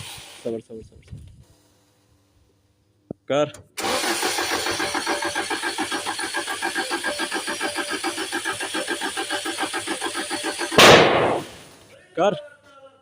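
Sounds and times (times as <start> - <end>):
starter motor cranking engine: 3.8 - 10.8
short loud burst of noise: 10.7 - 11.8.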